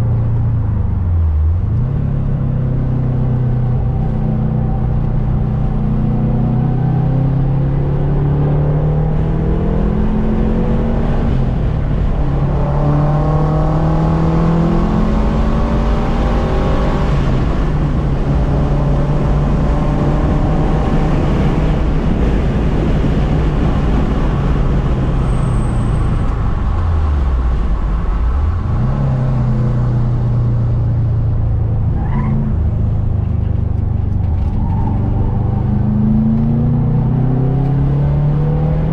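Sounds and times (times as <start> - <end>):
car engine accelerating hard: 0.0 - 38.9.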